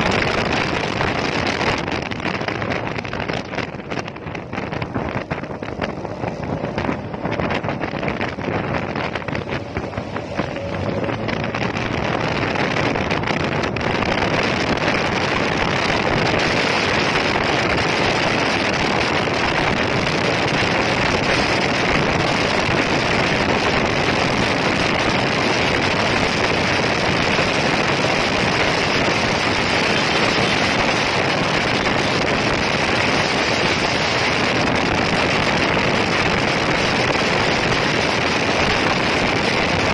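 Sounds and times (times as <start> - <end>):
scooter engine running: 0.0 - 39.9
wind and road noise: 0.0 - 39.9.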